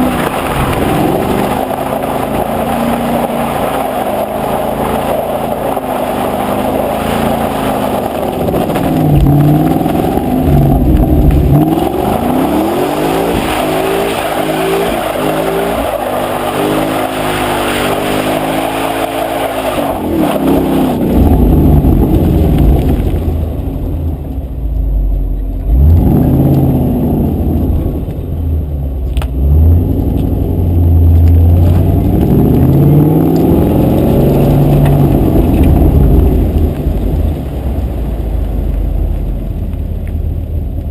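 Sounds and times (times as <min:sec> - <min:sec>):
car engine revving and accelerating: 0:00.0 - 0:39.6.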